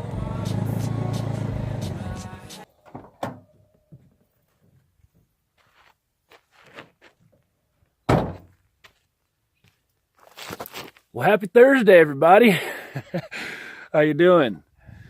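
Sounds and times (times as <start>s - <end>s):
loud thump: 8.1s - 8.5s.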